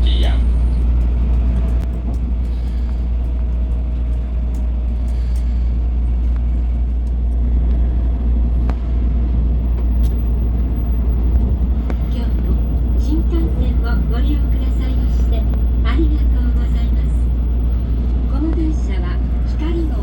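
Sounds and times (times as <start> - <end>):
train running at speed: 0.0 - 20.0.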